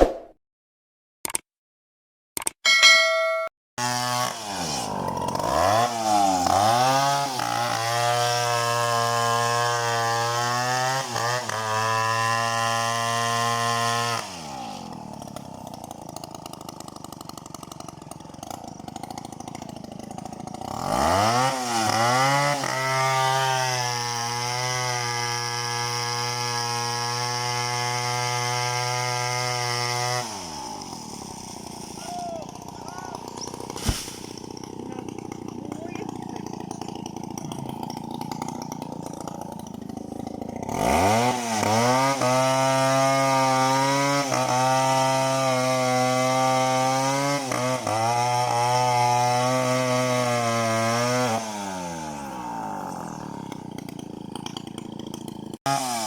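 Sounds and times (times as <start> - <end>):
chainsaw engine revving: 3.8 - 56.0.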